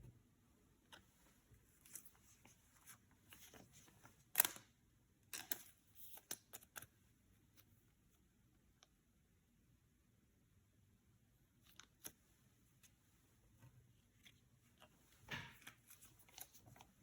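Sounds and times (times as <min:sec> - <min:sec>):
cards clicking and rustling: 0:15.5 - 0:17.0.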